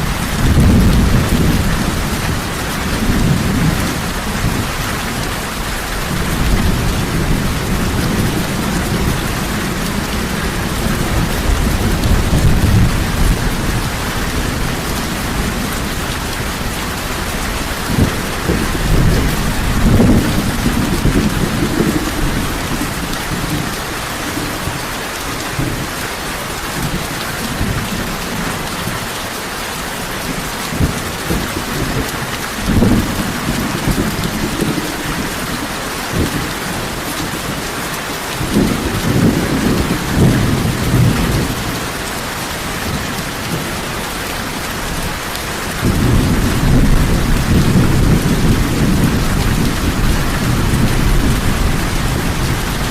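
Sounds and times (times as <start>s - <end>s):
low rolls of thunder: 0.0s - 4.7s, 6.0s - 24.5s, 45.6s - 52.9s
heavy rain falling: 0.0s - 52.9s.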